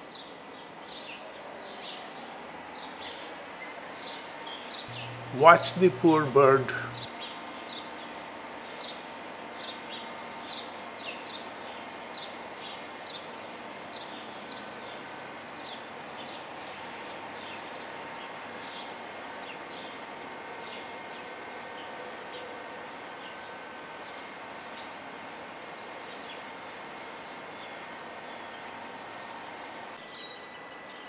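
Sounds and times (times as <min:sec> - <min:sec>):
background hum: 0:04.9 - 0:07.1.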